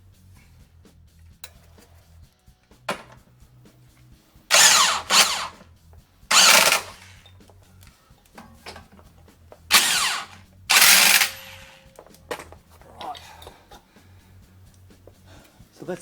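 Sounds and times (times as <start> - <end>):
impact driver bursts: 4.5 - 5.6, 6.3 - 7.1, 9.7 - 11.9.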